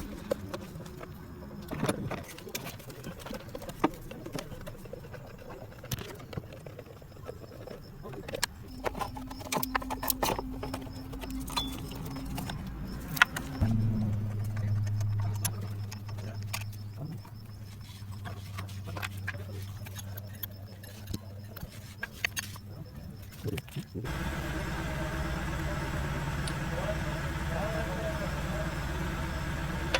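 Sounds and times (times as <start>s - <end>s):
steady hum: 8.9s - 18.6s, 24.0s - 29.9s
loud low hum: 11.8s - 17.6s, 24.1s - 29.9s.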